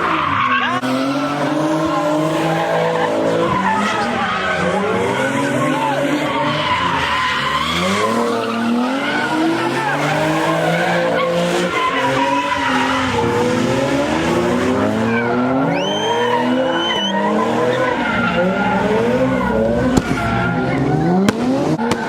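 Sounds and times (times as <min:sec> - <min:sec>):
car engine revving: 0:00.0 - 0:22.0
tyres squealing: 0:14.8 - 0:21.2.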